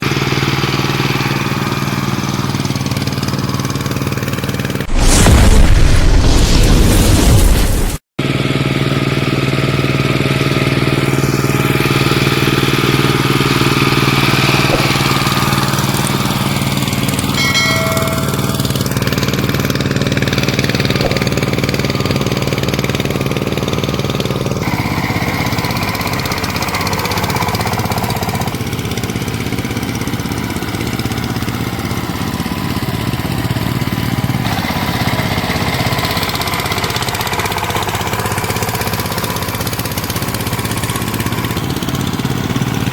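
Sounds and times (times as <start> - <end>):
power tiller diesel engine running: 0.0 - 4.9, 8.2 - 42.9.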